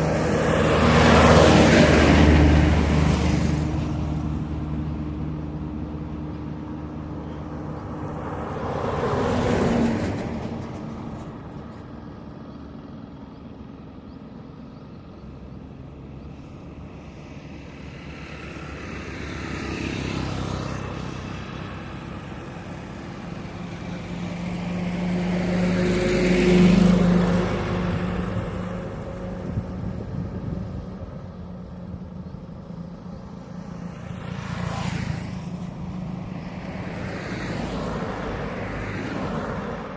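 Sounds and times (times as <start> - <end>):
steady engine hum: 0.0 - 39.9
vehicles passing on highway: 0.0 - 39.9.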